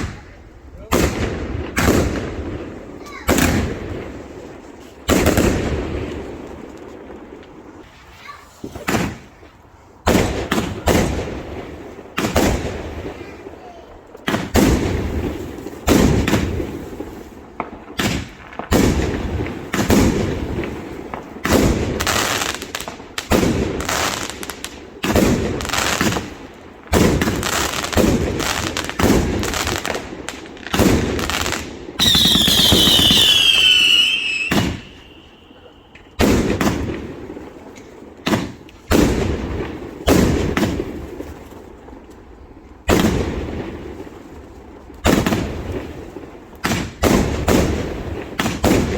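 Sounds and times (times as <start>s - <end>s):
firework bangs: 0.0s - 41.8s, 42.8s - 48.9s
falling firework whistles: 32.0s - 36.2s.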